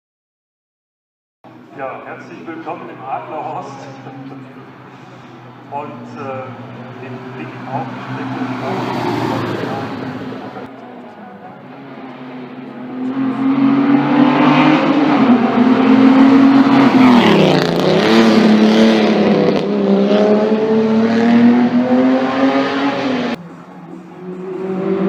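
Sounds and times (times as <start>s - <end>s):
racing car engine running hard: 11.6s - 25.0s.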